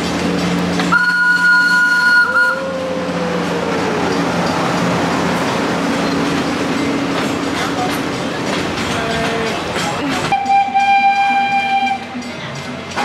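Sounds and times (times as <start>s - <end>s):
train running: 0.0s - 13.0s
train whistle chord: 0.9s - 3.0s, 10.3s - 12.1s.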